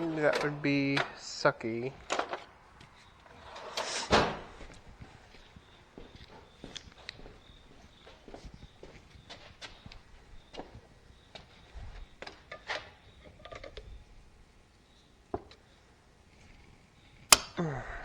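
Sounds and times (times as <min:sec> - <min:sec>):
hand tools clicking and knocking: 0:17.3 - 0:17.6
tool rattle: 0:17.3 - 0:17.6.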